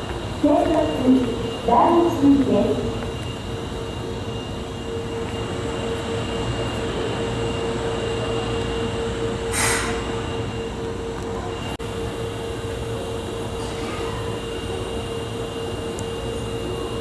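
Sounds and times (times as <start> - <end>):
subway train humming: 0.0 - 17.0
short air hiss: 9.5 - 10.0.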